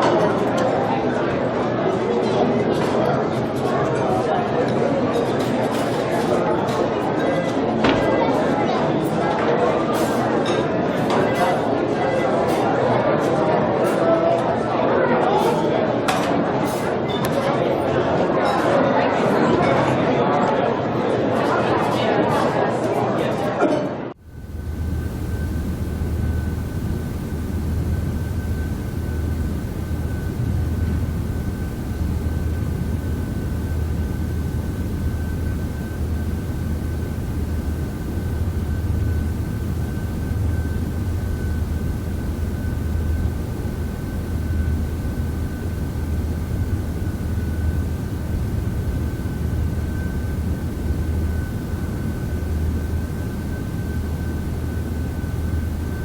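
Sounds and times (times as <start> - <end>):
low mechanical drone: 24.2 - 56.0
thin constant whine: 24.2 - 56.0.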